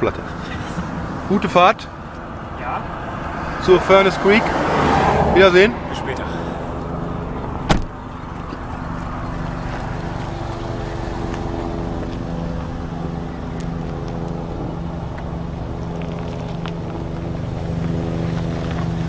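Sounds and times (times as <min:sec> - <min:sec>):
car engine running: 0:05.0 - 0:19.0.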